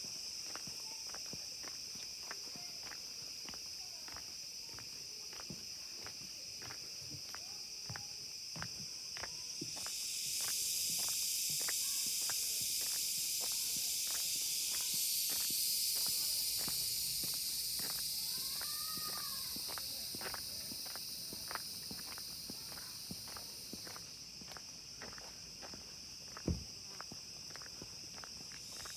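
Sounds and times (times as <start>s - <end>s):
insects buzzing: 0.0s - 28.9s
regular insect ticking: 0.0s - 28.9s.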